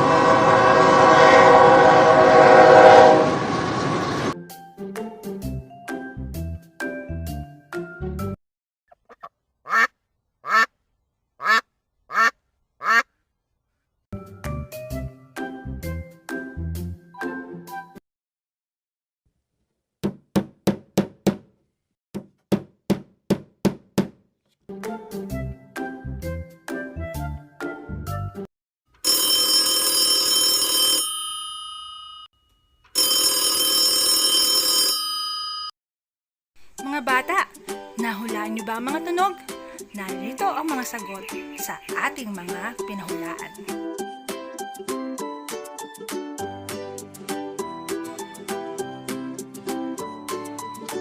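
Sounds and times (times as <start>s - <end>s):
background music: 4.4s - 8.4s, 14.2s - 18.0s, 24.7s - 28.4s, 36.7s - 51.0s
duck quacking: 9.0s - 10.7s, 11.4s - 13.1s
telephone bell ringing: 29.0s - 32.3s, 33.0s - 35.8s.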